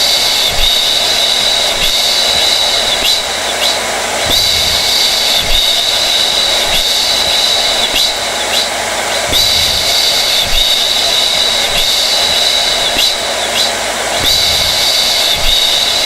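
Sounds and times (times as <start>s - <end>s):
hair dryer running: 0.0s - 16.0s.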